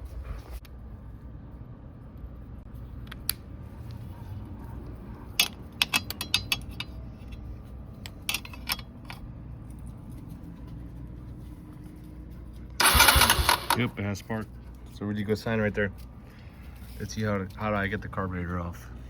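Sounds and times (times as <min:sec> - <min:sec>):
steady low hum: 0:00.0 - 0:19.0
metallic clicks of hand tools: 0:05.4 - 0:06.9.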